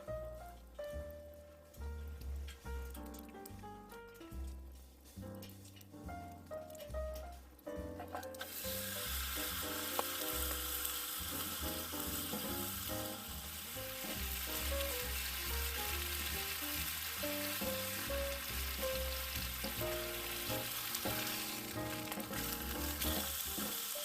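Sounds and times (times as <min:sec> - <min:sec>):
background music: 0:00.0 - 0:24.0
steak sizzling over fire: 0:08.0 - 0:24.0.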